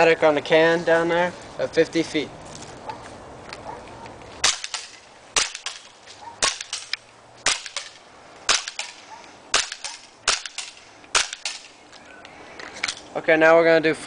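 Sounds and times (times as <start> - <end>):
airsoft pistol cracks: 4.4 - 11.8.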